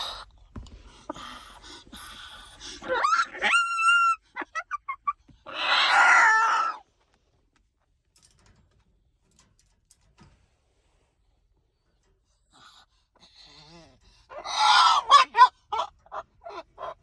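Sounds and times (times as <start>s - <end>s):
cockatoo calling: 2.8s - 6.8s, 14.3s - 17.0s.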